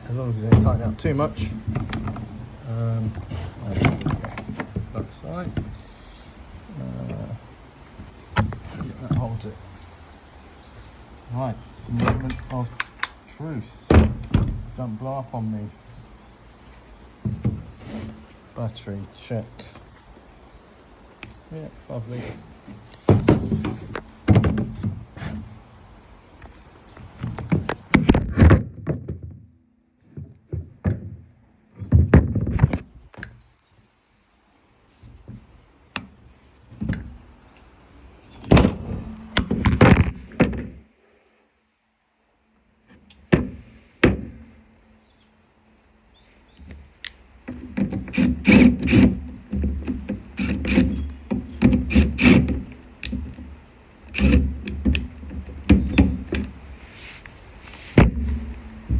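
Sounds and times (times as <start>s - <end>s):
clunks of handling saw parts: 0.3s - 9.8s, 11.6s - 13.2s, 13.9s - 15.0s, 22.7s - 25.5s, 35.1s - 37.2s, 38.3s - 40.8s, 46.6s - 58.9s.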